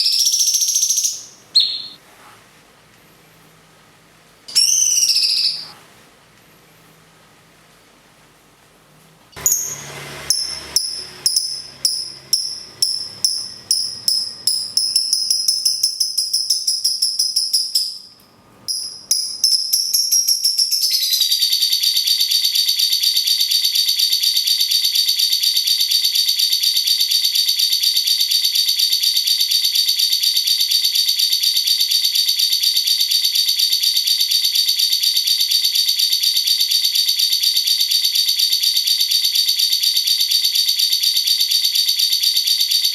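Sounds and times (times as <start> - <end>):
lovebird chattering trill: 0.0 - 2.0, 4.5 - 5.7.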